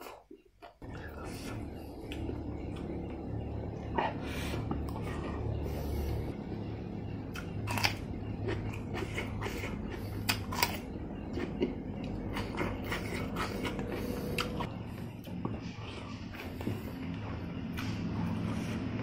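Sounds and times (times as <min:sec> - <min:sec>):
low hum: 0:00.8 - 0:19.0
crunchy food chewing: 0:07.2 - 0:15.6.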